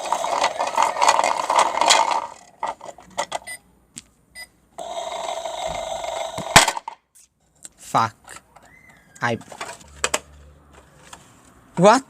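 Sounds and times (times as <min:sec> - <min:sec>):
toy washing machine grinding rattle: 0:00.0 - 0:03.5, 0:04.8 - 0:06.9.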